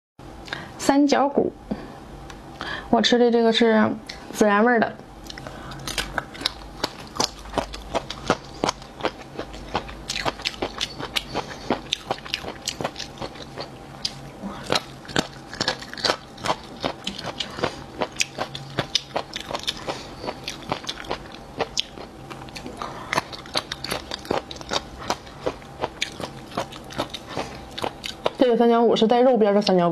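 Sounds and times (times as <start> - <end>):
wet chewing: 5.2 - 28.4.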